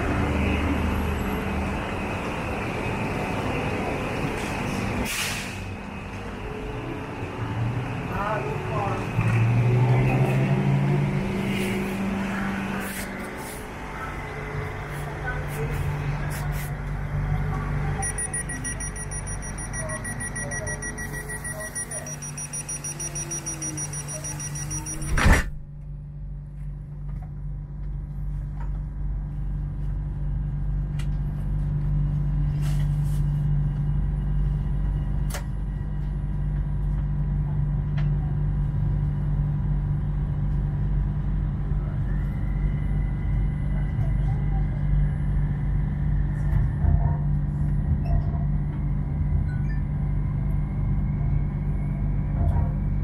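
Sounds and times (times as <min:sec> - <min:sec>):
train low hum: 0:00.0 - 0:25.0, 0:25.6 - 0:53.0
door warning beeps: 0:18.0 - 0:25.4.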